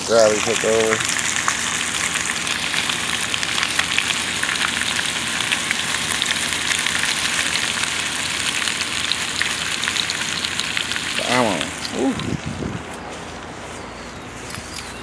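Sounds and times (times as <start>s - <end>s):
vegetables sizzling in a skillet: 0.0s - 11.8s.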